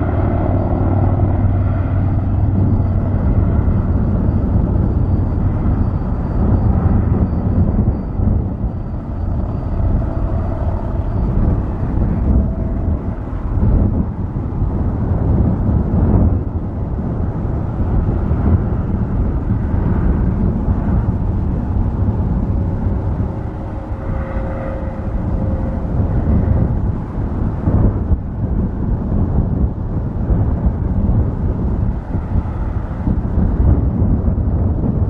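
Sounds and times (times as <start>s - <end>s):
faint whine: 0.0s - 35.0s
jet engines rumbling: 0.0s - 35.0s.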